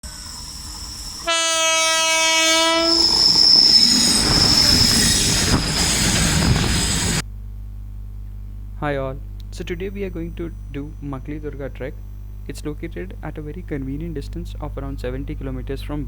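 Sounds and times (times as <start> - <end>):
high wheel squeal: 0.0 - 7.2
train rumble and clatter: 0.0 - 7.2
train horn: 1.2 - 3.4.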